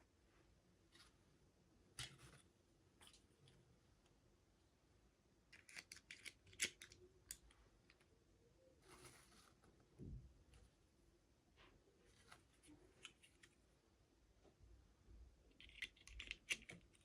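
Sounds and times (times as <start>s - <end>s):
toy packaging clicking and crinkling: 5.5s - 7.6s, 15.6s - 17.0s.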